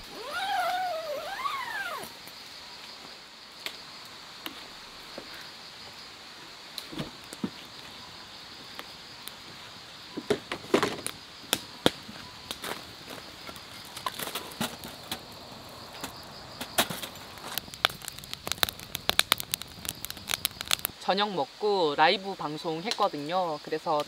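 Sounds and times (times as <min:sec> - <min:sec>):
insect chirring: 0:00.0 - 0:24.0
sharp crackles and knocks: 0:06.7 - 0:08.0, 0:08.6 - 0:20.9.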